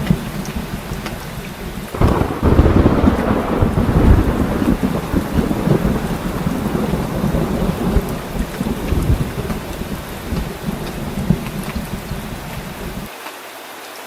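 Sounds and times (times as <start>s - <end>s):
rolling thunder: 0.0s - 13.1s
heavy rain pouring: 0.0s - 14.0s.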